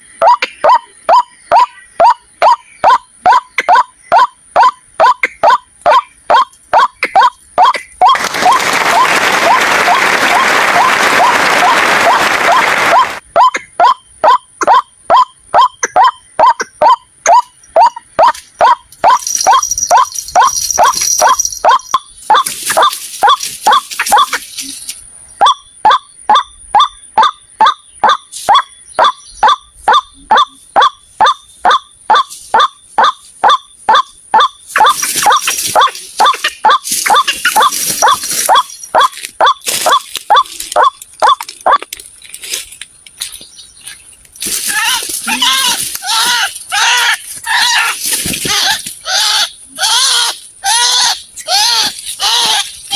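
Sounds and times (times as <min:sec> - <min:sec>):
waterhen calls: 0:00.2 - 0:08.6, 0:10.8 - 0:24.7, 0:25.4 - 0:41.8.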